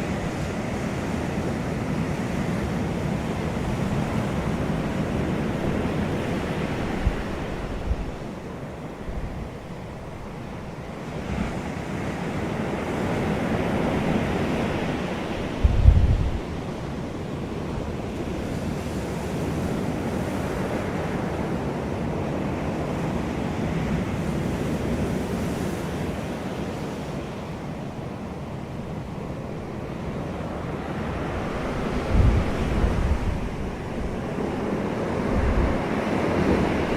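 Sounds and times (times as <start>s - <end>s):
wind buffeting microphone: 0.0s - 10.4s, 13.8s - 17.1s, 30.0s - 36.9s
wind blowing: 3.2s - 10.4s, 13.8s - 17.2s, 28.7s - 36.9s.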